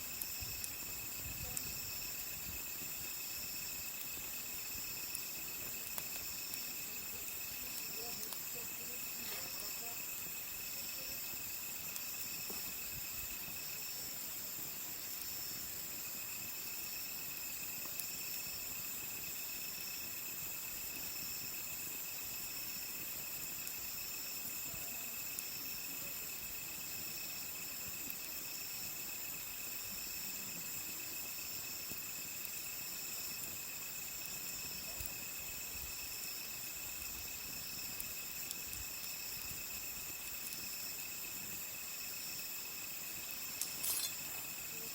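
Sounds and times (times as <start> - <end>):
night insects chirring: 0.0 - 44.9
wood fire crackling: 0.0 - 44.9.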